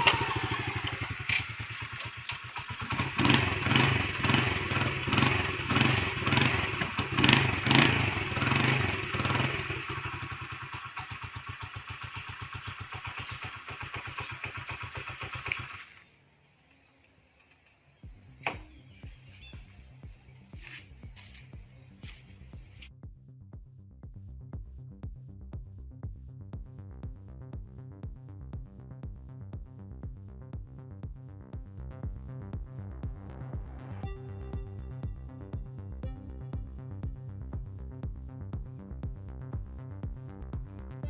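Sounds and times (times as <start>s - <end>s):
motorcycle engine revving and idling: 0.0s - 16.3s, 17.5s - 23.2s, 24.4s - 41.0s.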